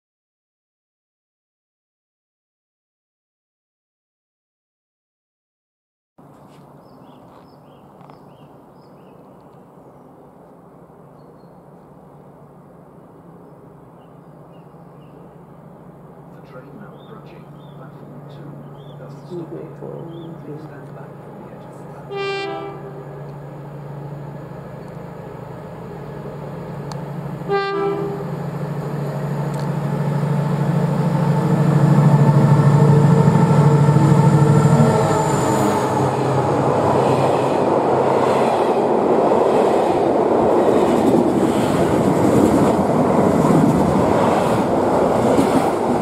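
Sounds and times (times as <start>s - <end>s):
locomotive engine drone: 9.8s - 46.0s
train horn blast: 22.0s - 23.2s, 27.4s - 28.4s.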